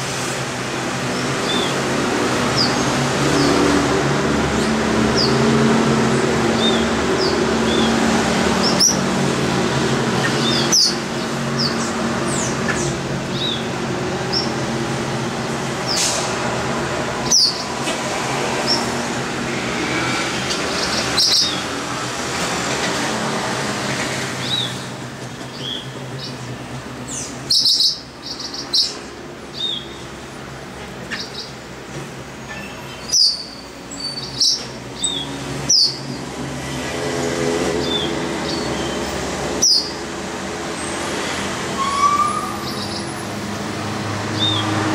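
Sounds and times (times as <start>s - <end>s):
small birds chirping: 1.2s - 1.9s, 2.5s - 3.6s, 6.4s - 9.1s, 10.1s - 14.7s, 17.2s - 17.8s, 18.6s - 19.0s, 20.5s - 21.8s, 24.4s - 30.3s, 31.0s - 31.6s, 32.4s - 36.3s, 37.8s - 40.1s.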